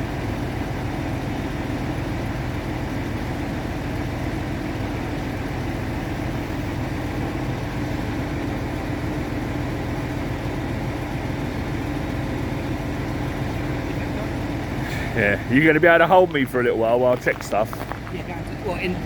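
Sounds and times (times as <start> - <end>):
boat engine idling: 0.0 - 19.0.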